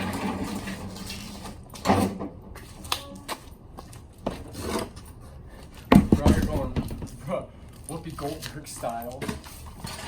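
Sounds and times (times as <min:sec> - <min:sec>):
knocks and clunks: 0:05.9 - 0:07.2.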